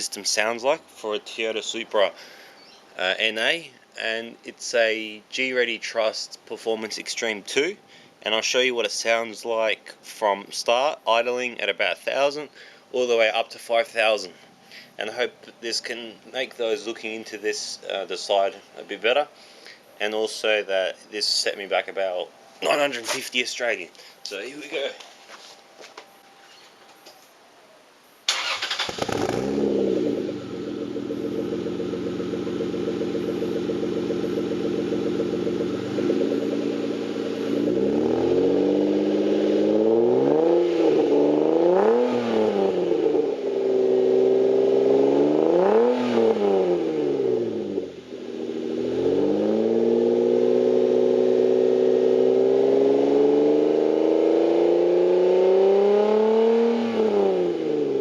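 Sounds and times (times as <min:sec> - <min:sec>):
car engine starting and idling: 0:28.3 - 0:54.3
car engine revving: 0:28.3 - 0:58.0.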